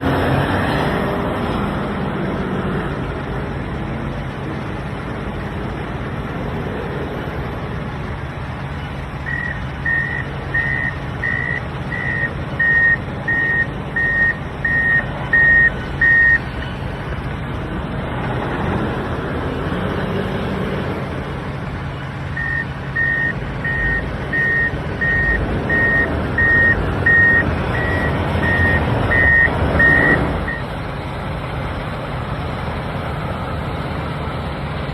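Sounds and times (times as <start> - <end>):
heavy diesel engine revving: 0.0 - 34.9
reversing alarm beeping: 9.2 - 16.8, 22.3 - 30.7.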